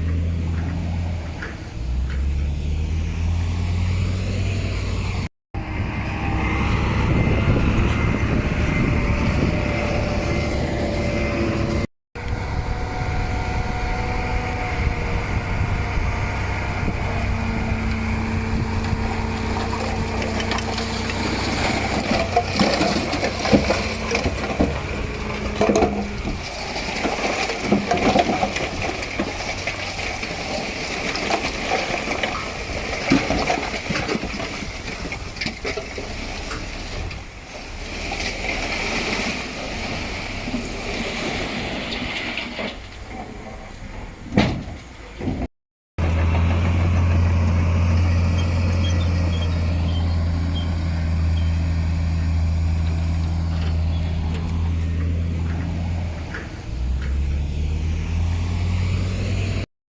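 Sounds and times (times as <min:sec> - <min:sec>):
engine whine: 0:00.0 - 0:38.3, 0:46.0 - 0:59.7
diesel engine running: 0:00.0 - 0:42.2, 0:46.0 - 0:59.7
dirt and rock crunching: 0:14.9 - 0:43.6, 0:46.0 - 0:59.6.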